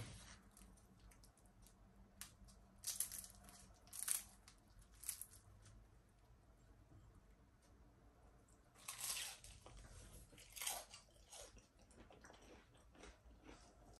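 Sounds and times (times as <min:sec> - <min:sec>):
crunchy spring roll bitten and chewed: 0:08.8 - 0:14.0.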